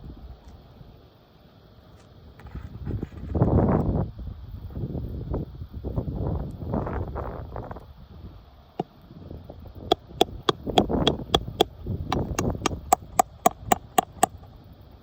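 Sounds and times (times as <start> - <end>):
scraping and rustling on roof: 1.9 - 3.9.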